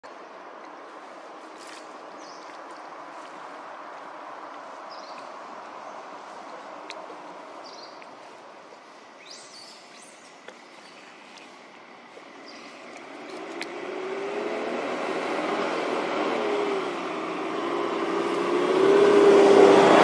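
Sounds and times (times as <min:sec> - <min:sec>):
steady background noise: 0:00.0 - 0:20.0
bird chirping: 0:07.6 - 0:08.4, 0:09.2 - 0:11.6.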